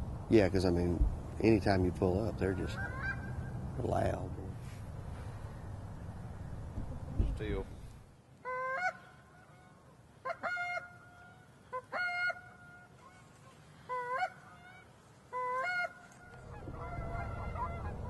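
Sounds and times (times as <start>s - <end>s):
goose honking: 2.5s - 3.4s, 8.5s - 18.0s.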